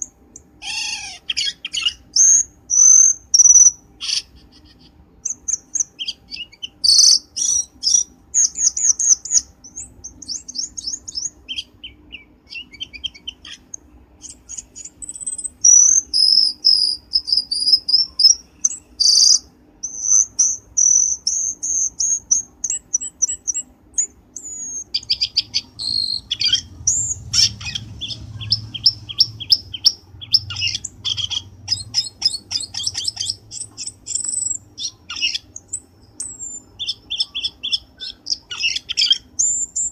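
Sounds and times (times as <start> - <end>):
bird chattering and whistling: 0.0 - 39.9
low hum: 24.0 - 37.3.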